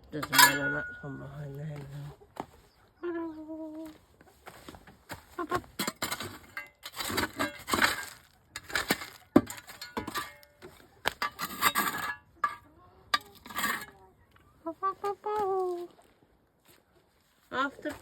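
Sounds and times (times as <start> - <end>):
scraping and crunching strokes: 4.3 - 14.0.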